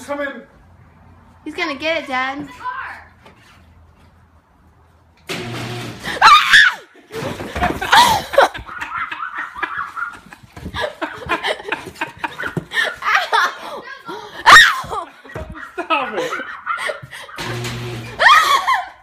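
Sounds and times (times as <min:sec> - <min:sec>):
people shrieking: 0:06.1 - 0:06.9, 0:14.4 - 0:17.4, 0:18.1 - 0:19.0
people laughing: 0:07.1 - 0:13.8, 0:14.9 - 0:17.4, 0:18.2 - 0:19.0.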